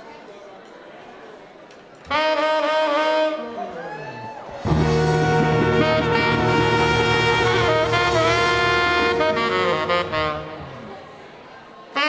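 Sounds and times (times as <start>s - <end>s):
live band with saxophone and brass: 2.1s - 3.9s, 4.6s - 11.2s.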